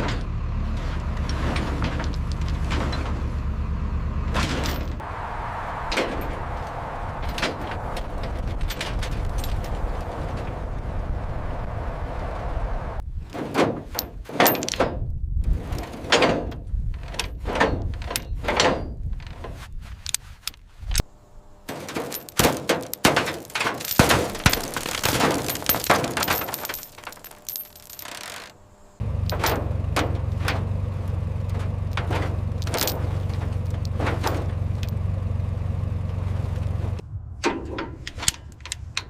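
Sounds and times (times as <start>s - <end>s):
low engine hum: 0.0s - 13.3s, 28.6s - 39.0s
steel chains clanking on metal: 4.4s - 5.0s, 7.3s - 10.1s, 21.7s - 28.5s, 29.1s - 35.1s.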